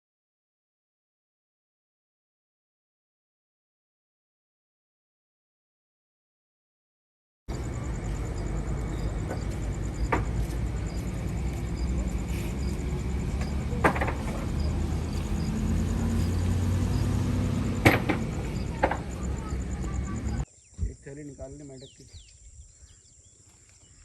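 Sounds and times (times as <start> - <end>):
vehicle rumbling on the move: 7.5 - 20.5
sharp knocks: 9.2 - 10.7, 13.3 - 14.8, 17.6 - 19.2.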